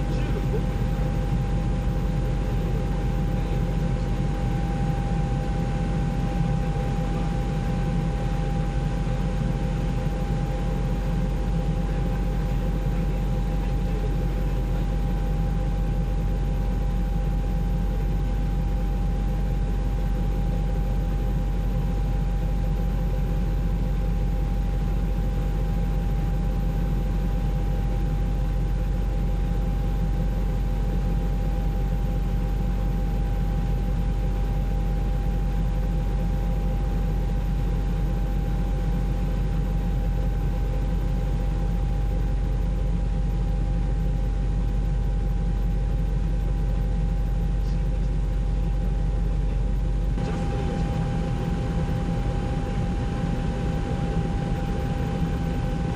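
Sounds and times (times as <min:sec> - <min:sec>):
constant whine: 0:00.0 - 0:55.9
helicopter engine and rotor drone: 0:00.0 - 0:55.9.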